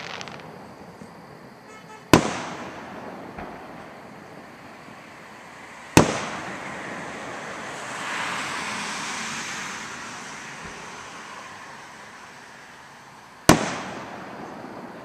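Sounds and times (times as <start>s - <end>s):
firework bang: 0.0s - 1.1s, 2.1s - 4.0s, 6.0s - 7.3s, 13.5s - 15.0s
rushing road traffic noise: 2.8s - 15.0s.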